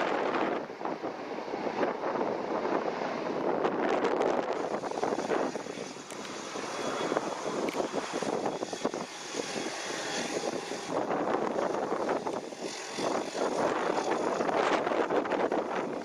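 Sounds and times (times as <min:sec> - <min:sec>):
aircraft engines rushing: 0:00.0 - 0:16.0
faint high whine: 0:04.3 - 0:16.0.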